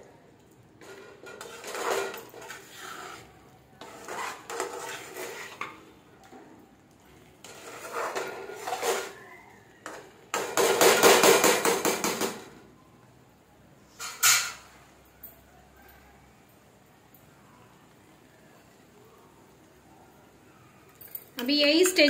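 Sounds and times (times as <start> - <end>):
spoon stirring and scraping a pan: 0.6 - 12.5.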